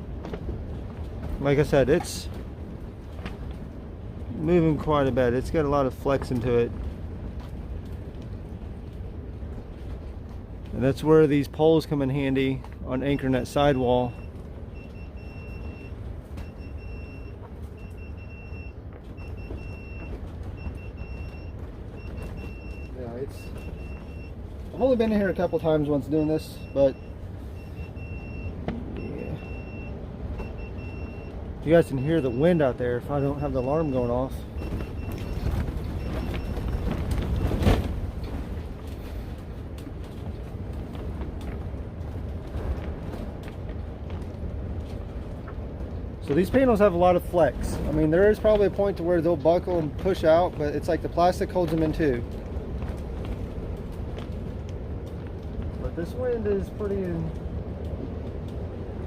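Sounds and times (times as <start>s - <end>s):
strong wind buffeting greenhouse: 0.0s - 59.0s
alarm beeping: 13.4s - 37.8s.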